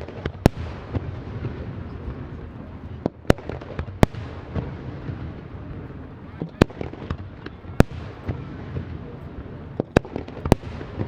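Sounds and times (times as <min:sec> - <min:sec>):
fireworks bursting: 0:00.0 - 0:11.0
small firework pops: 0:06.3 - 0:11.0.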